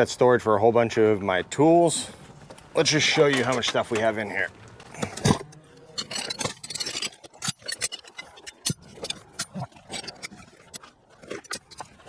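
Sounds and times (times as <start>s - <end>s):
metal hand tools clinking: 5.0s - 12.0s.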